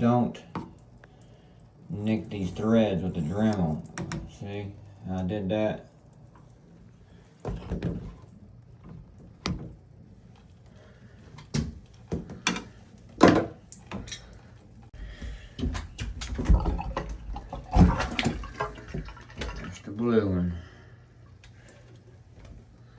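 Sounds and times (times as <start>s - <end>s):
clicks and knocks of valve parts: 11.3s - 14.4s.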